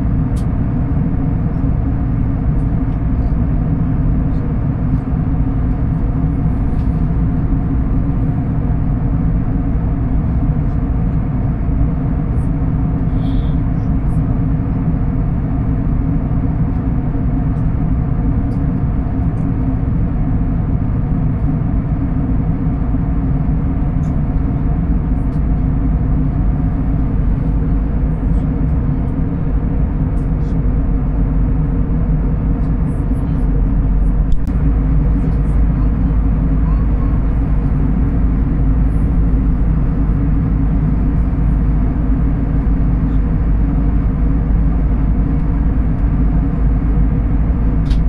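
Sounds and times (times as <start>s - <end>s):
vehicle interior rumble: 0.0s - 48.0s.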